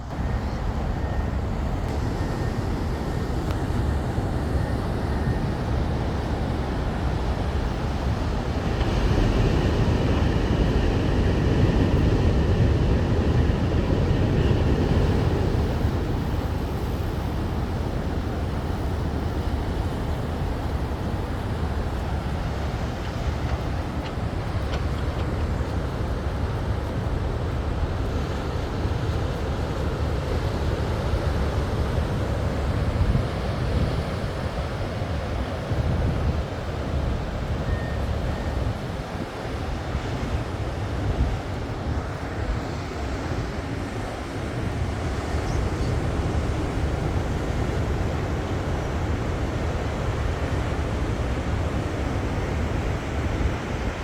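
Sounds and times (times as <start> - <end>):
dredge rumbling: 0.0 - 34.0
wind: 0.0 - 54.0.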